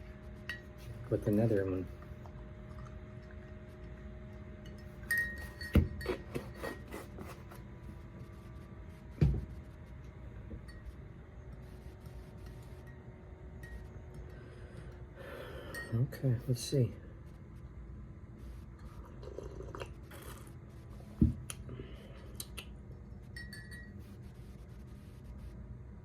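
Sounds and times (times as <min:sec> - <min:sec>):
spoon clinking against mug: 0:04.6 - 0:06.4, 0:23.3 - 0:24.0.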